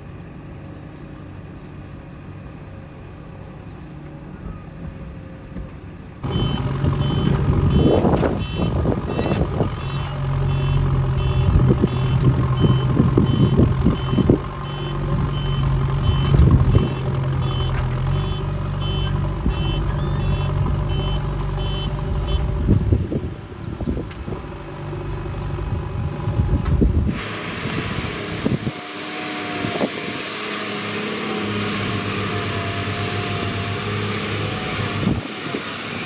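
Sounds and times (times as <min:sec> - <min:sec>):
diesel engine running: 0:00.0 - 0:36.0
reversing alarm beeping: 0:06.2 - 0:22.4.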